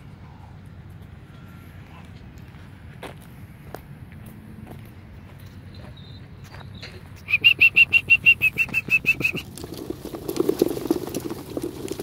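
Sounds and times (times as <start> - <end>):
high chirps: 5.7 - 9.4
pigeon wings clattering: 8.6 - 12.0.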